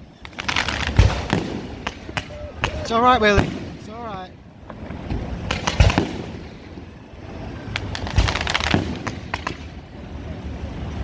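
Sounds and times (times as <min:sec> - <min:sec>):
fireworks bangs and cracks: 0:00.0 - 0:09.9
scattered firework pops: 0:00.2 - 0:03.8, 0:05.0 - 0:06.6, 0:07.7 - 0:09.8.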